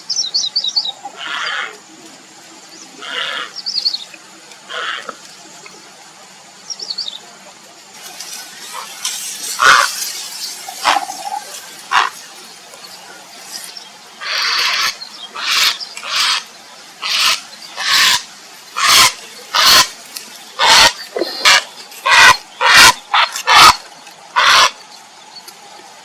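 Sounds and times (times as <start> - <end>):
heron croaking harshly: 4.7 - 5.2, 9.6 - 10.0, 10.8 - 12.2, 14.2 - 20.0, 20.6 - 23.8, 24.4 - 24.8.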